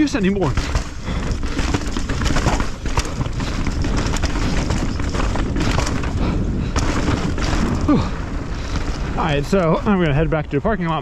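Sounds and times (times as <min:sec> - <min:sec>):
bike rattling over rocks: 0:00.0 - 0:11.0.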